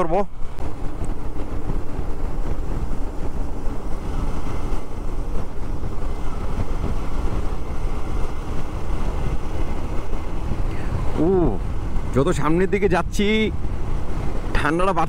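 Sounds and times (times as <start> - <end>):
road noise: 0.0 - 15.0
wind on microphone: 0.0 - 15.0.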